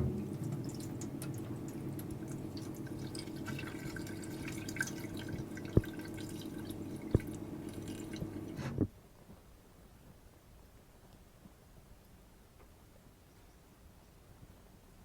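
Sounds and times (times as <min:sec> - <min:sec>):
water running from a tap: 0:00.0 - 0:08.6.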